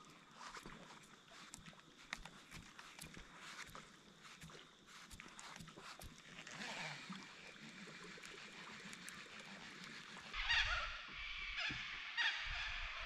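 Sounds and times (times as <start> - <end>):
faint bird calls: 9.0 - 13.0
bird calling: 10.4 - 13.0.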